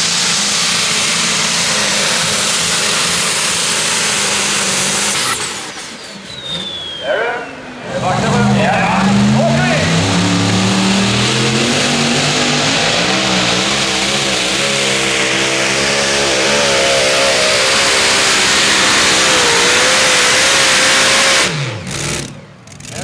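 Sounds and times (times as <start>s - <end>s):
tractor engine running under load: 0.0s - 7.0s, 8.2s - 20.8s.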